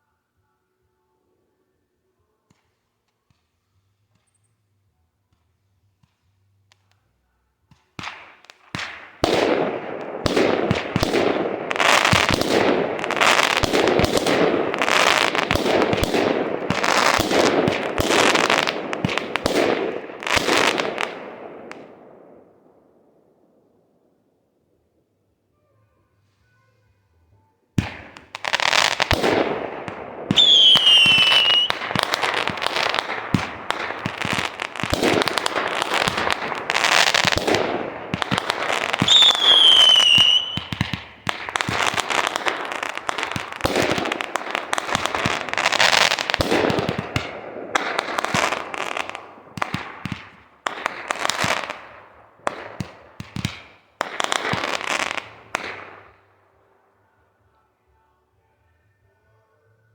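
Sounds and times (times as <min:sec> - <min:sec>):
fireworks bangs and crackling: 0:05.3 - 0:23.3, 0:27.8 - 0:56.4
whistling shells falling in pitch: 0:39.0 - 0:40.8.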